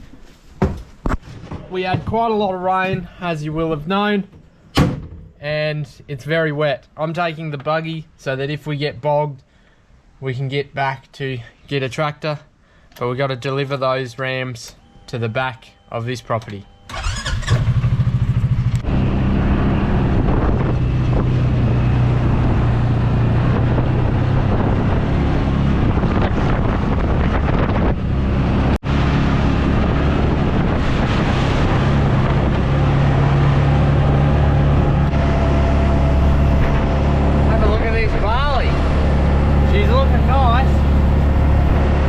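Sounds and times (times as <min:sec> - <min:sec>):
buggy engine running: 0:16.9 - 0:42.0
wind on microphone: 0:19.5 - 0:42.0.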